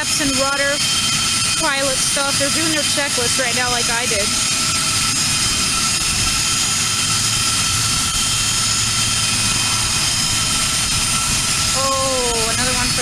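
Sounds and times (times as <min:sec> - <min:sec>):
jet engines idling: 0:00.0 - 0:13.0.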